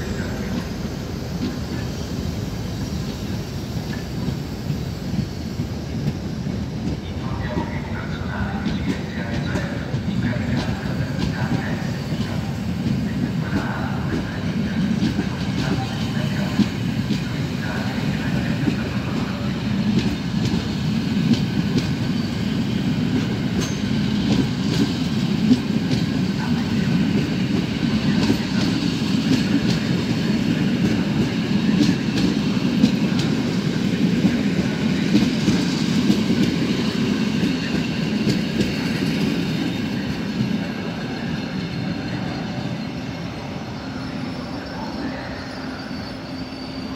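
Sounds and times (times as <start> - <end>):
rumble of train wheels: 0.0 - 46.9
faint wheel squeal: 41.2 - 46.9.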